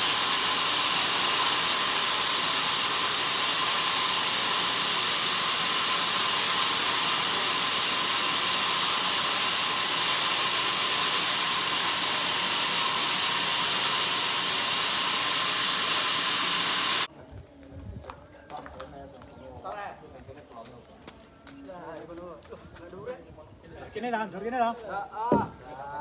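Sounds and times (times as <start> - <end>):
band saw cutting log: 0.0 - 17.1.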